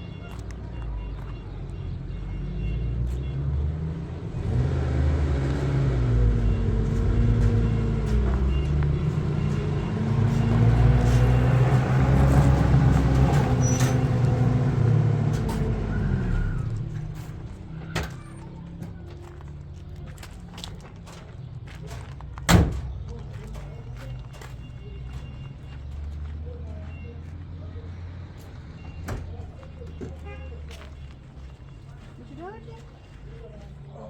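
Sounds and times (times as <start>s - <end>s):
vehicle engine revving: 2.8s - 17.7s.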